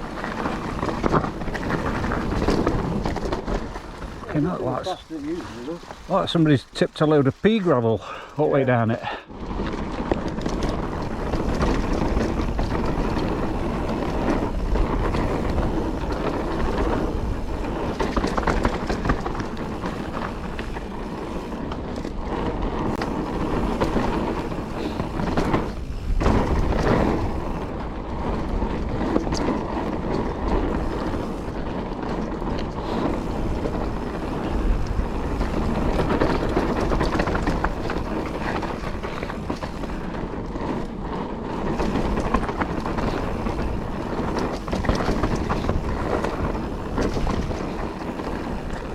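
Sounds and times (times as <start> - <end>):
bike rattling: 0.0 - 48.9
tyres crunching over gravel: 0.0 - 48.9
wind on microphone: 9.2 - 48.9.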